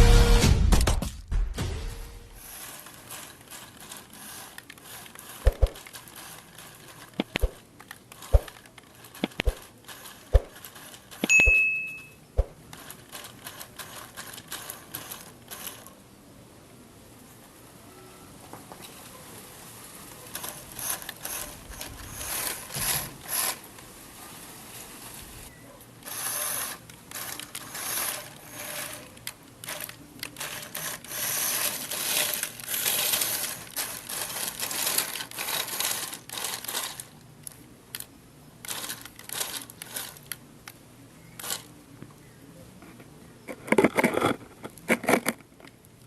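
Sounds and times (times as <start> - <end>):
toy bulldozer motor whirring: 2.4 - 11.3, 12.7 - 16.0, 20.1 - 23.8, 24.7 - 40.4, 41.3 - 41.7.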